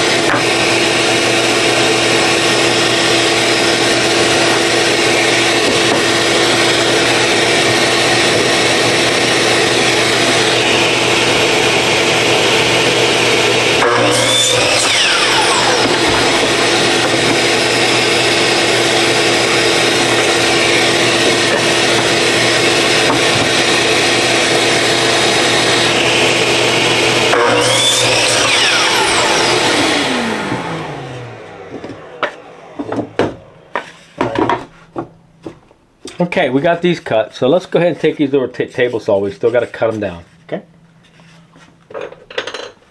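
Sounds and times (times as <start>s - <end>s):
saw motor spinning down: 0.0s - 34.2s
electric miter saw cutting wood: 0.0s - 37.2s.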